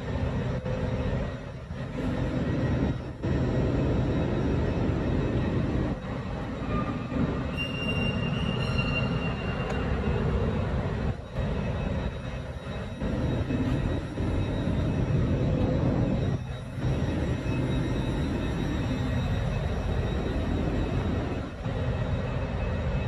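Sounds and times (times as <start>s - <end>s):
electric train humming: 0.0s - 23.0s
faint high whine: 0.0s - 23.0s.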